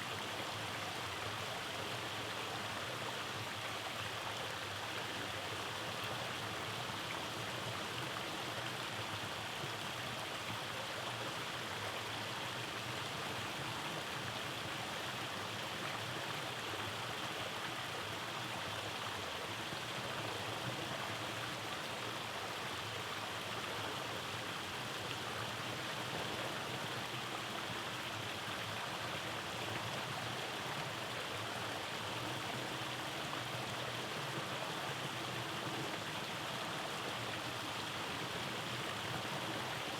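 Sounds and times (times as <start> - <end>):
stream rushing over cascades: 0.0 - 39.9.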